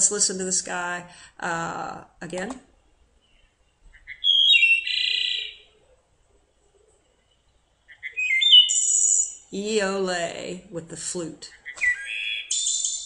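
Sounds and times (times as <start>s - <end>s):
wood thrush song: 3.2s - 5.7s, 7.8s - 9.6s, 11.5s - 13.0s.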